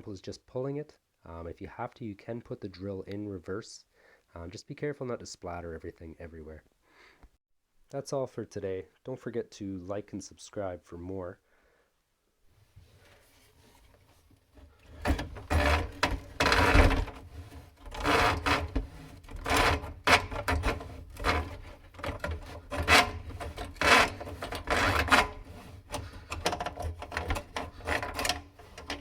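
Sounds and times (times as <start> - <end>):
rubbing and scraping: 12.8 - 29.0.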